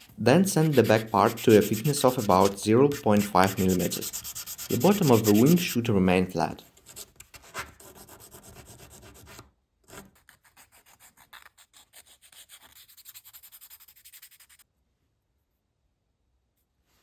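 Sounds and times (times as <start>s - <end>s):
sandpaper rubbing on wood: 0.0s - 5.9s, 10.4s - 14.6s.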